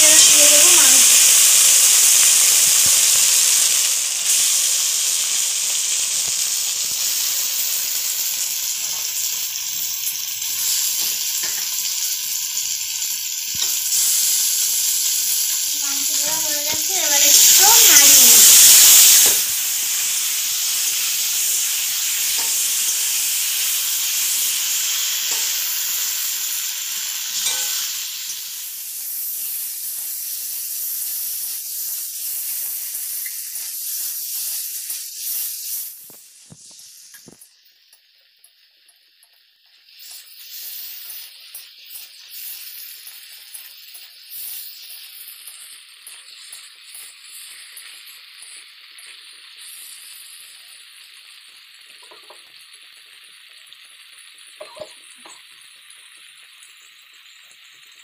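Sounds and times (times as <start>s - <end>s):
chicken sizzling in hot oil: 0.0s - 58.0s
metal spatula scraping: 27.4s - 27.9s.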